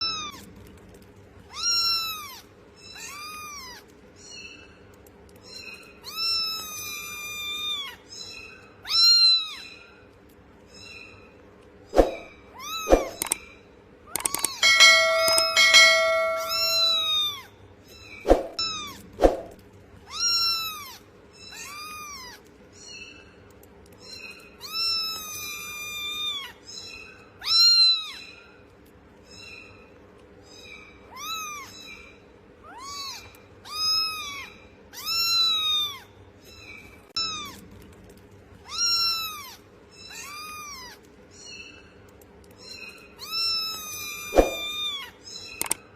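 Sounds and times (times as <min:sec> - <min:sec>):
steady held tone: 0:14.6 - 0:17.3.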